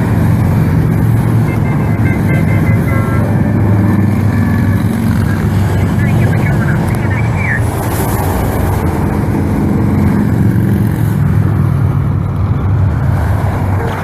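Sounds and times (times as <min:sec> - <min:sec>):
motorcycles passing: 0:00.0 - 0:14.0.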